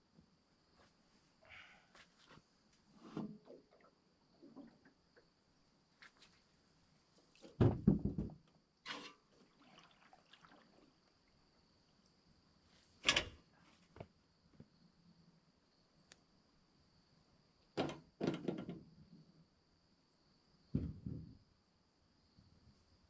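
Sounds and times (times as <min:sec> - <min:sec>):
knocks and thumps: 0:07.6 - 0:08.5, 0:20.7 - 0:21.4.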